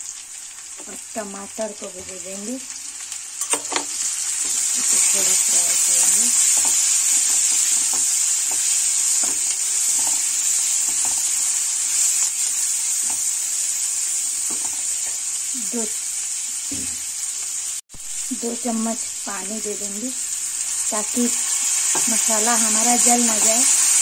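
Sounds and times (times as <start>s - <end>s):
tomatoes sizzling in hot oil: 0.0s - 24.0s
spatula scraping and knocking pan: 3.4s - 11.4s.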